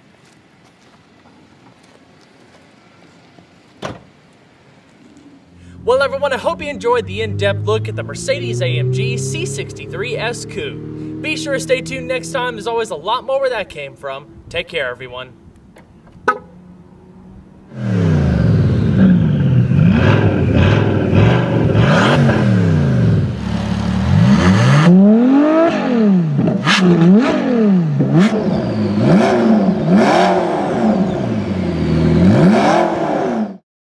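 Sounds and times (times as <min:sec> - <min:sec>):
car engines revving hard: 0:05.5 - 0:12.5, 0:16.6 - 0:33.6.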